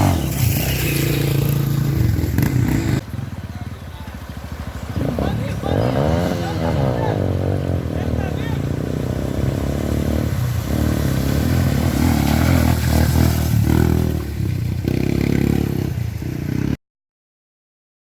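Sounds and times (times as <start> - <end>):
motorcycle engine revving: 0.0 - 16.8.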